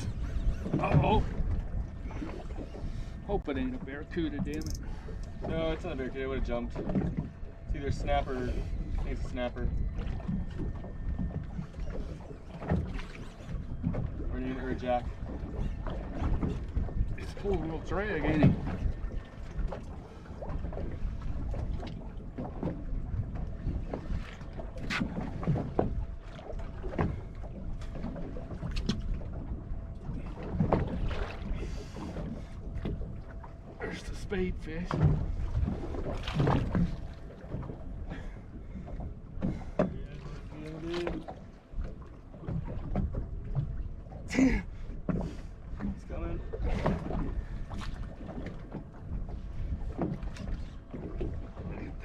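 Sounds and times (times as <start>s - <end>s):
wind buffeting the microphone: 0.0s - 40.5s
water slapping against boat hull: 0.0s - 52.0s.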